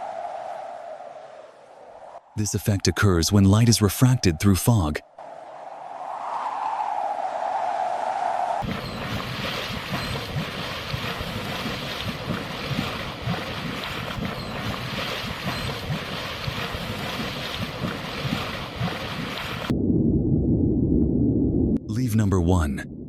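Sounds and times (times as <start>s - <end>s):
strong wind buffeting microphone: 5.2s - 21.8s.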